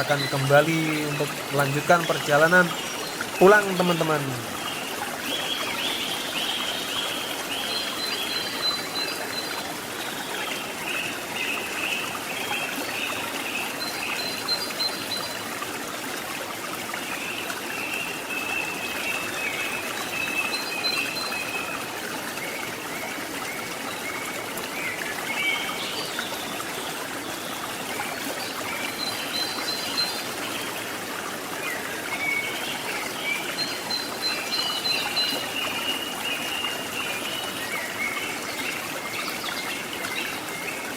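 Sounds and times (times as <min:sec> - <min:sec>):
flowing stream water: 0:00.0 - 0:40.9.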